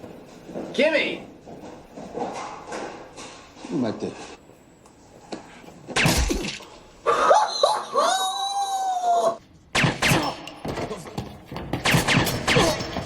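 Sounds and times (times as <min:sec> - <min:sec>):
person screaming high-pitched: 0:07.1 - 0:09.4.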